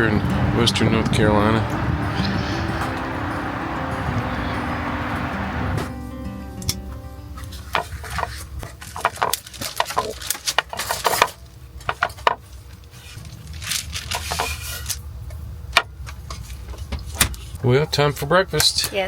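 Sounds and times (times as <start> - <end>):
low steady rumble: 0.0 - 5.9.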